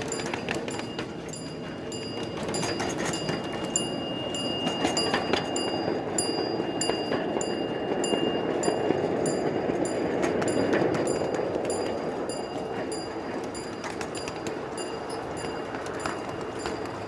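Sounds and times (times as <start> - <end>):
thin high tone: 0.0 - 17.0
train rolling rumble: 0.0 - 17.0
wheels clicking over rail joints: 0.0 - 17.0.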